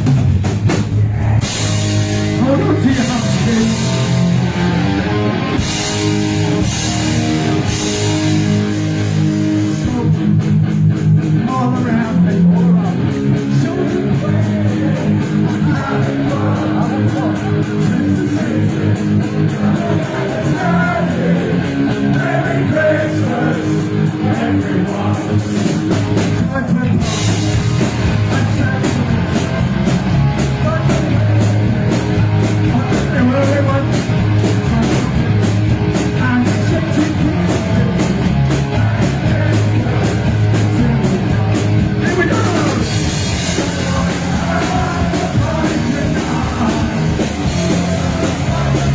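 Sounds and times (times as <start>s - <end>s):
punk band playing loud: 0.0s - 48.9s
pounding drums: 5.4s - 48.9s
sung and shouted vocals: 11.6s - 27.1s, 36.2s - 48.9s.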